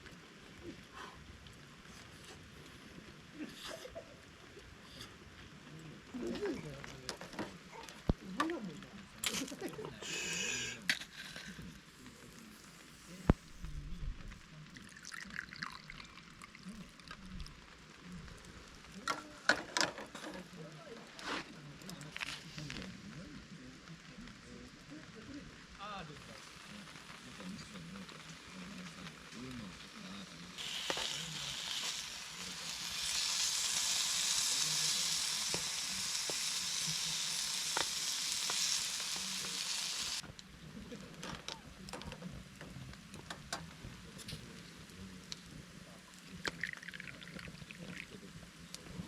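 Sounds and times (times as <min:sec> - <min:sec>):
food sizzling in a pan: 0:06.1 - 0:23.2, 0:24.2 - 0:40.2
oil popping and spattering: 0:13.2 - 0:19.4, 0:46.2 - 0:48.2
liquid pouring and trickling: 0:14.7 - 0:17.6, 0:46.4 - 0:48.1.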